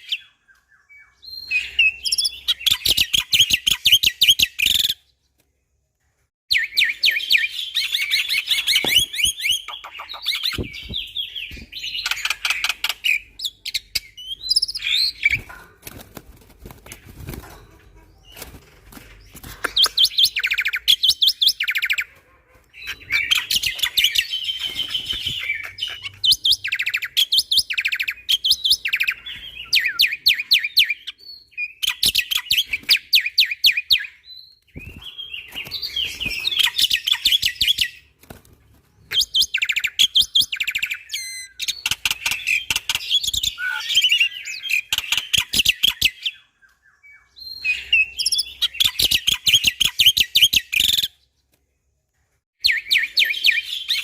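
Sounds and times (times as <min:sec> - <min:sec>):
starling singing: 0:06.5 - 0:15.6.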